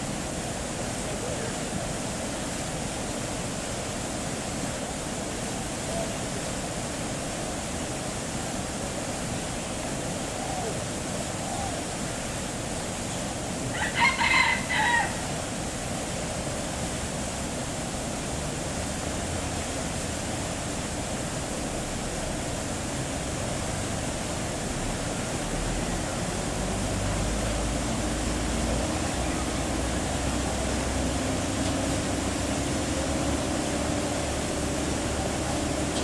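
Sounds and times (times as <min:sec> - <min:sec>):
steady background hiss: 0:00.0 - 0:36.0
rooster crowing: 0:13.7 - 0:15.4.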